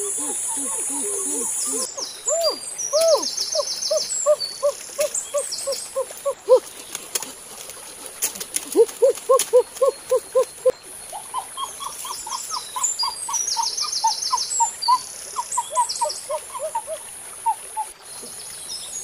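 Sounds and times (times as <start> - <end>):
bird hooting: 0.0 - 6.7, 8.7 - 10.7.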